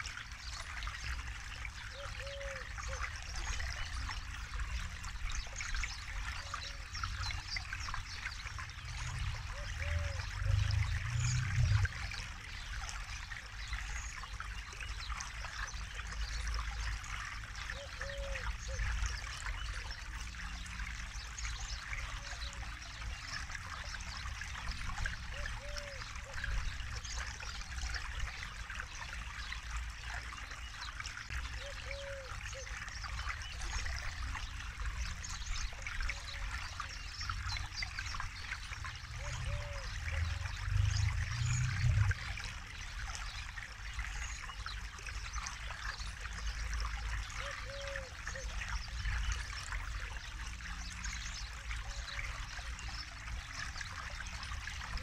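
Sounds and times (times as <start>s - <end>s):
river flowing over stones: 0.0s - 55.0s
low rumble: 40.3s - 42.4s.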